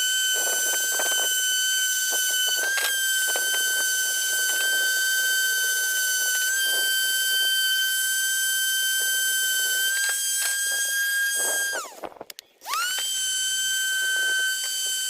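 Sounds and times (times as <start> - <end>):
electric power tool whining: 0.0 - 15.0.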